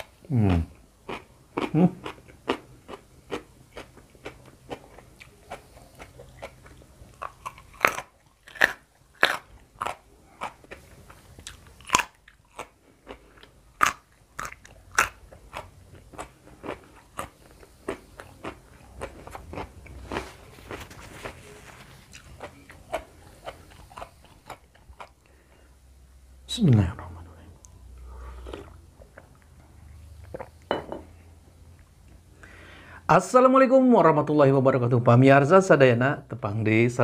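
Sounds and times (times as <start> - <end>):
crunching and chewing food: 0.0 - 25.8.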